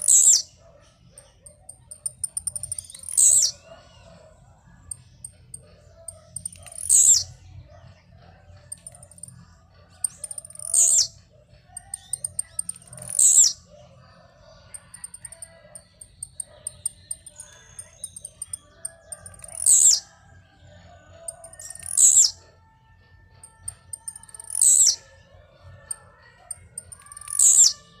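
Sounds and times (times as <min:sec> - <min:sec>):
faint high bird chips: 0:00.0 - 0:00.6, 0:01.2 - 0:04.3, 0:04.9 - 0:07.4, 0:10.0 - 0:13.7, 0:14.7 - 0:20.2, 0:21.2 - 0:22.5, 0:23.5 - 0:25.1, 0:25.9 - 0:28.0.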